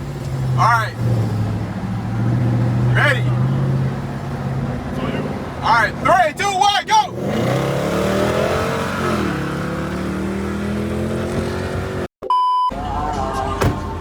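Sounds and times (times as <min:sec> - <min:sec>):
car engine accelerating hard: 0:07.0 - 0:12.1
short electronic beep: 0:12.2 - 0:12.8.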